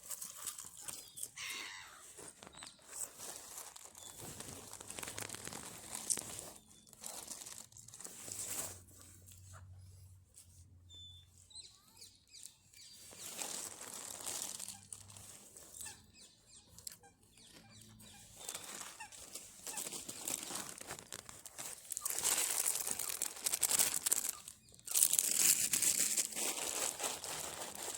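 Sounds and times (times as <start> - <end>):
short high chirps: 1.4 - 2.0.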